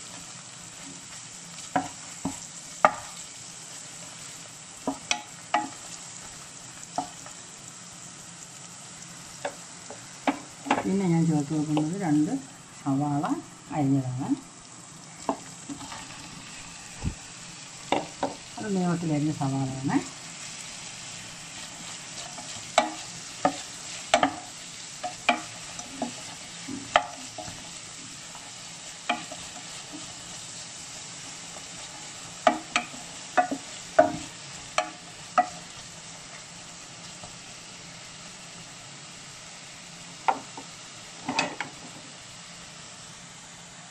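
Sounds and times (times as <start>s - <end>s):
onions sizzling in oil: 0.0s - 43.9s
spatula knocking against pan: 17.9s - 18.4s.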